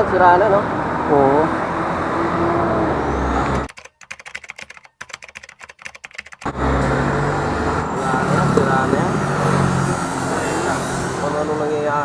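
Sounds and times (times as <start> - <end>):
rapid irregular clicks and crackles: 3.6 - 6.5.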